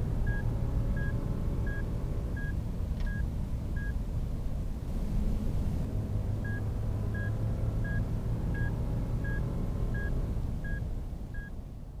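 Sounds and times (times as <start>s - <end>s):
vehicle warning chime beeps: 0.2s - 4.0s, 6.4s - 11.6s.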